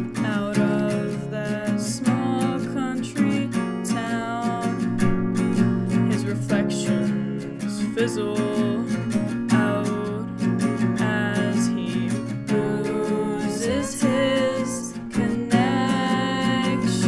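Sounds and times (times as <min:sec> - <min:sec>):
acoustic guitar strumming: 0:00.0 - 0:17.0
person singing: 0:06.0 - 0:10.4, 0:11.0 - 0:17.0.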